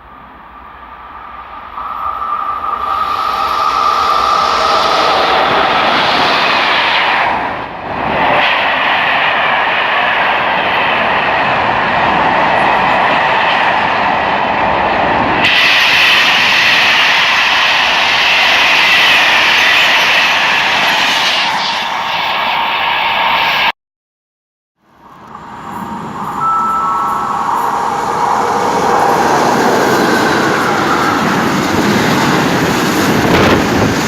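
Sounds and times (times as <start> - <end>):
train passing at speed: 0.0 - 23.7, 24.8 - 34.0.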